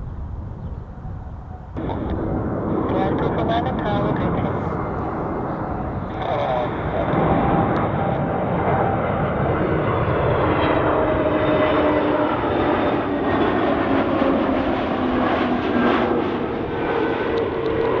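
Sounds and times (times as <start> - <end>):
jet airliner engines passing: 0.0 - 18.0.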